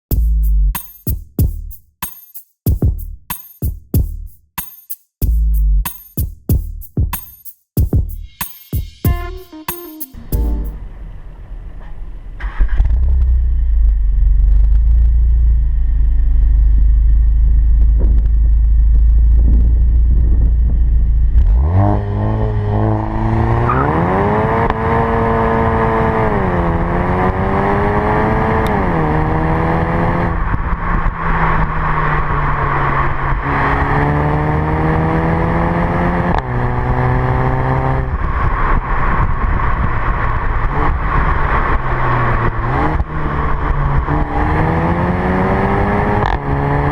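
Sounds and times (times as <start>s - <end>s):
car engine revving: 15.3s - 46.9s.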